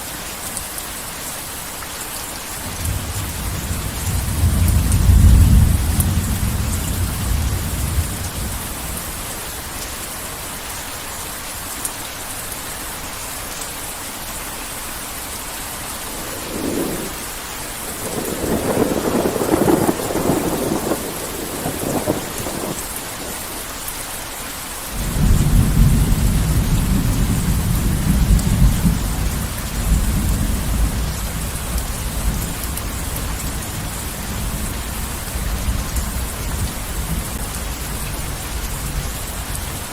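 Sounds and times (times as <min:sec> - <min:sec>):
heavy rain falling: 0:00.0 - 0:39.9
rolling thunder: 0:02.7 - 0:09.2, 0:16.1 - 0:23.3, 0:25.0 - 0:39.1.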